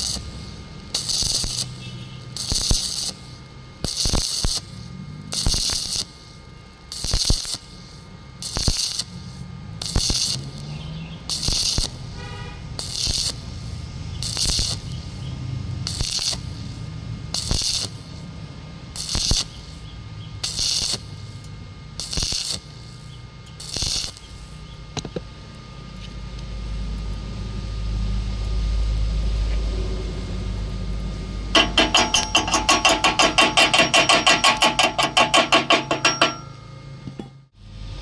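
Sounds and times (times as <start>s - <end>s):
welding arc crackling hiss: 0.0s - 27.2s, 29.2s - 36.6s
fast even pulsing: 31.5s - 36.7s.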